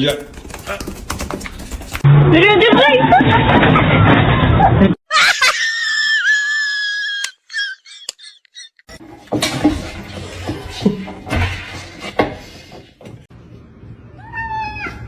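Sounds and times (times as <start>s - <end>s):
knocks and clatters: 0.0s - 2.1s, 9.0s - 13.3s.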